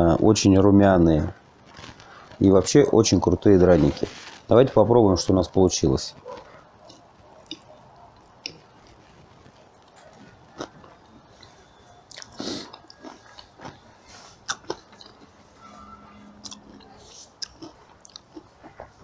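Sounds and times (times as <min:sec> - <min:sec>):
man chewing food: 0:06.2 - 0:19.0.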